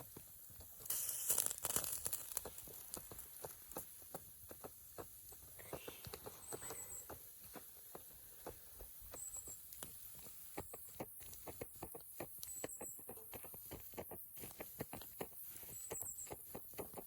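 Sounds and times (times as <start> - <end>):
wood fire crackling: 0.0 - 11.4.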